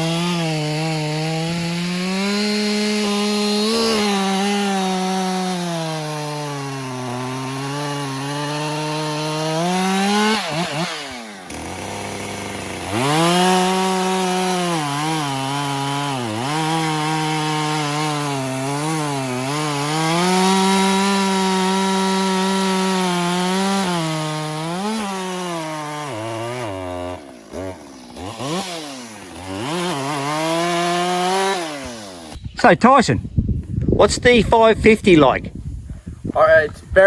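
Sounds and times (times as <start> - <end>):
chainsaw cutting a log: 0.0 - 32.4.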